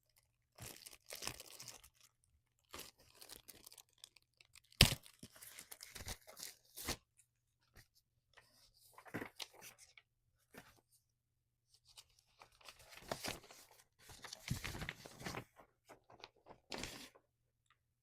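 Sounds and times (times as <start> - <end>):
paper rustling and crinkling: 8.4 - 10.8, 11.9 - 17.2.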